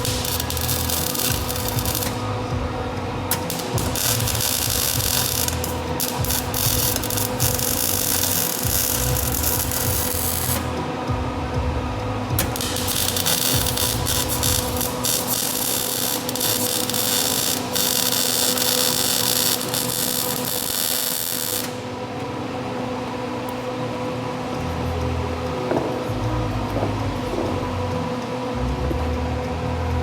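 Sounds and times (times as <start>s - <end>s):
welding arc crackling: 0.0s - 2.6s, 3.3s - 10.8s, 12.3s - 21.8s
steady hum: 0.0s - 30.0s.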